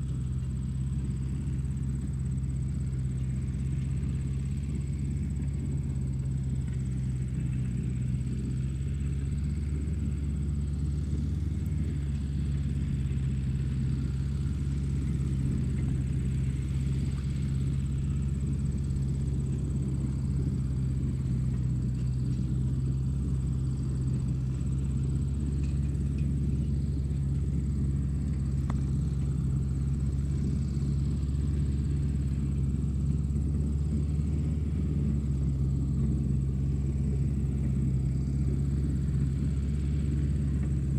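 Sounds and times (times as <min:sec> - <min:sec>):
low mechanical hum: 0:00.0 - 0:40.9.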